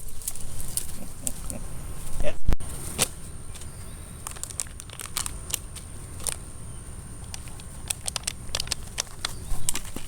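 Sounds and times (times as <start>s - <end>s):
light clicks and crackles: 7.2s - 10.0s.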